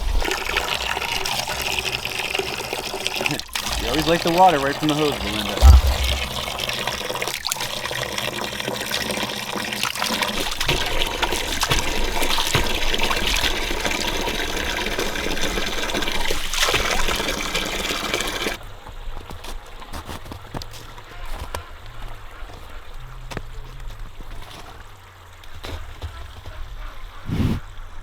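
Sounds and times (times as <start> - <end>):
water running from a garden hose: 0.0 - 18.6.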